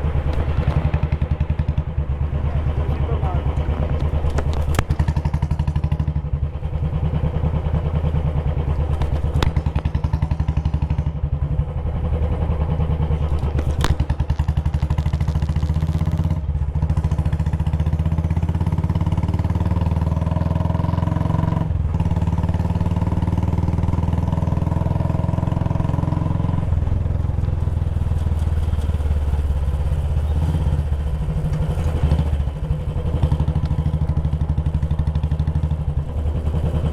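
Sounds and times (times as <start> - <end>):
motorcycle engine running: 0.0 - 36.9.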